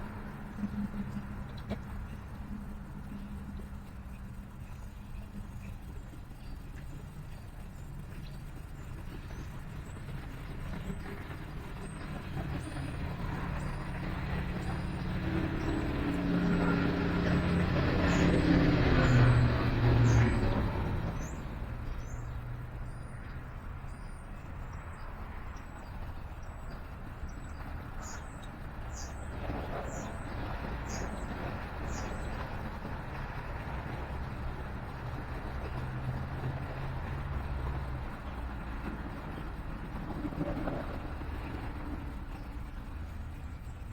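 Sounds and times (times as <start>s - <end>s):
vehicle driving past: 12.6s - 22.8s
small birds chirping: 17.2s - 35.9s.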